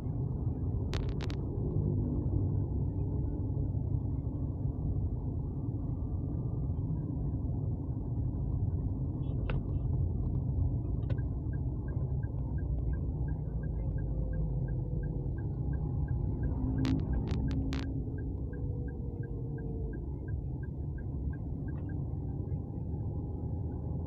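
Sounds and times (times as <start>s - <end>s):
vehicle road rumble: 0.0s - 24.0s
regular light ticking: 11.1s - 22.3s.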